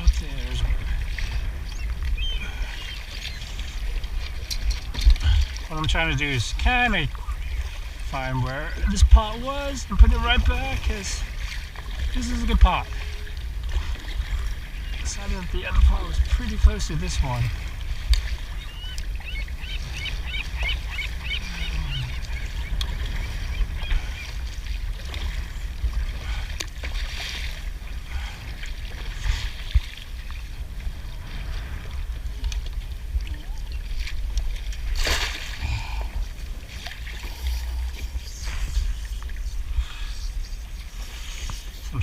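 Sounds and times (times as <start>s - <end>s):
kayak paddle splashing in water: 0.0s - 37.4s
low rumble: 27.6s - 41.2s.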